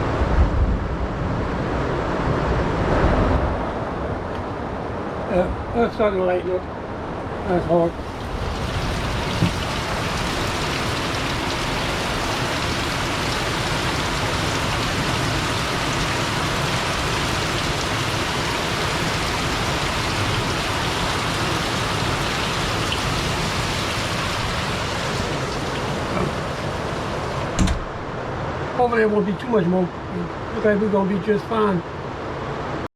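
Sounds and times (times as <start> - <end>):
heavy rain falling: 7.2 - 27.8.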